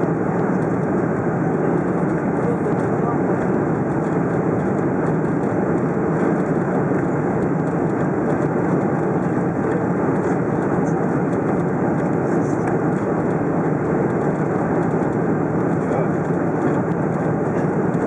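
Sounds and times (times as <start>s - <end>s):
airliner cabin engine rumble: 0.0s - 18.0s.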